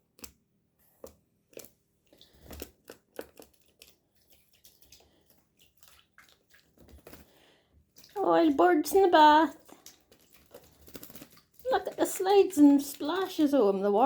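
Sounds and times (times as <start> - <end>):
bird splashing in water: 4.2 - 8.2.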